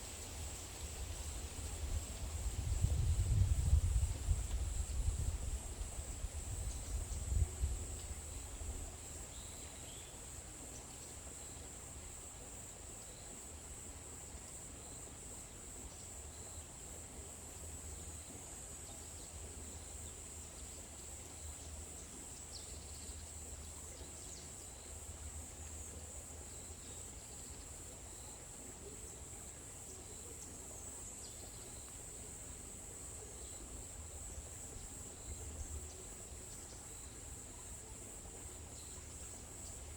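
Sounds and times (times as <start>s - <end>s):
high-pitched insect chorus: 0.2s - 39.9s
low wind rumble: 1.6s - 7.9s.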